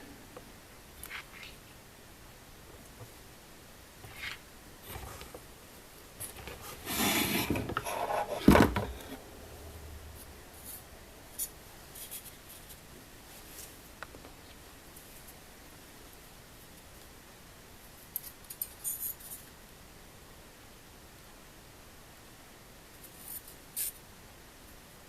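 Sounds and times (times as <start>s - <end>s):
plastic and metal scraping: 4.0s - 5.4s, 6.2s - 9.2s.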